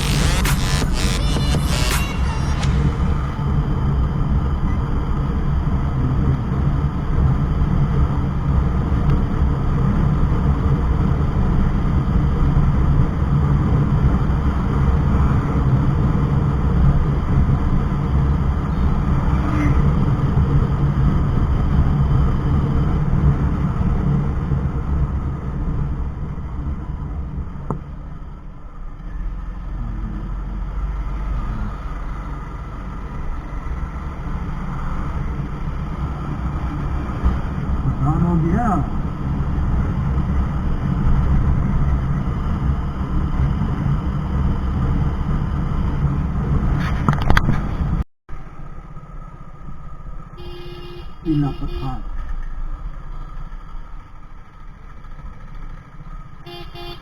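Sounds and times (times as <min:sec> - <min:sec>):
motorcycle engine running: 0:50.4 - 0:57.0.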